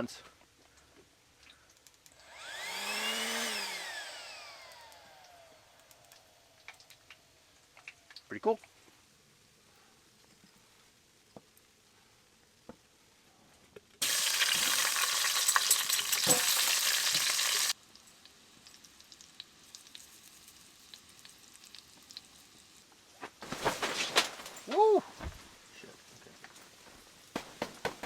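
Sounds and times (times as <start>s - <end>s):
faint ticks and crackles: 0.0s - 2.2s, 5.8s - 14.0s, 17.8s - 23.5s
burger sizzling in a frying pan: 14.0s - 23.2s.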